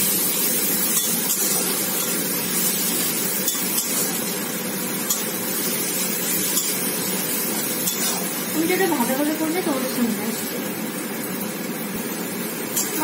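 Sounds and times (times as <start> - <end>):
paste sizzling in oil: 0.0 - 13.0
spatula scraping and clicking: 7.8 - 8.3.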